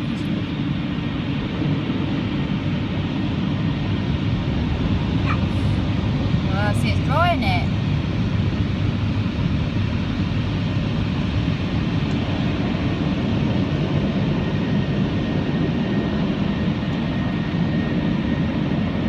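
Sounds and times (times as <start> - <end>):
car wash dryer blowers: 0.0 - 0.6, 4.4 - 8.1.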